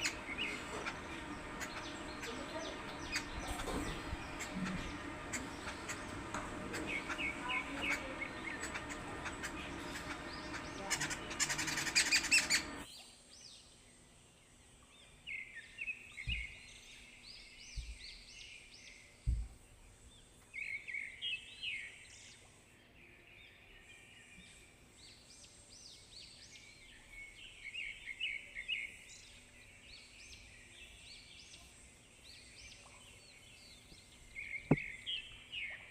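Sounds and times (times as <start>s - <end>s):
dense noisy background: 0.0s - 12.9s
small birds chirping: 0.0s - 14.0s, 14.8s - 35.9s.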